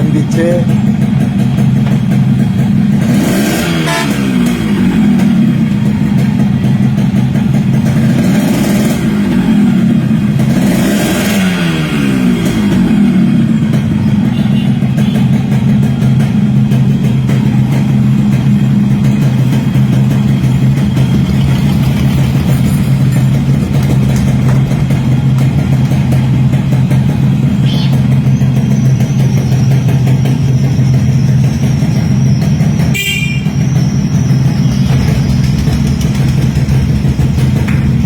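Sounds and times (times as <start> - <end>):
motorcycle engine idling: 0.0 - 38.0
horn toot: 3.4 - 4.6, 32.9 - 33.7.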